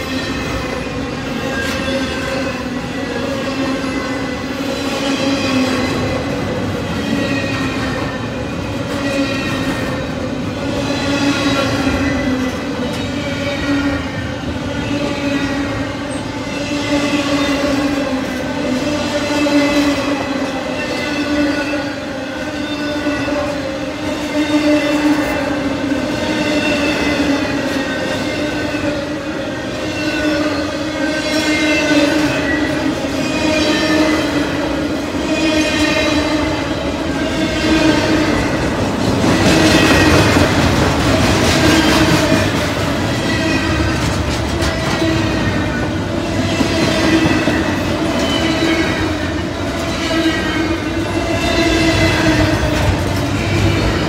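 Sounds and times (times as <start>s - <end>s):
freight train wheels roaring: 0.0s - 54.0s.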